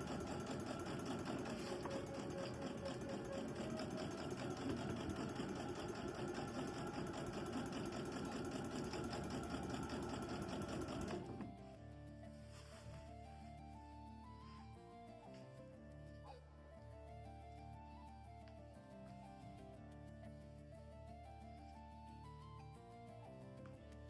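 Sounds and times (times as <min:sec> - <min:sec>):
sewing machine running: 0:00.0 - 0:11.6
soft background music: 0:00.0 - 0:24.0.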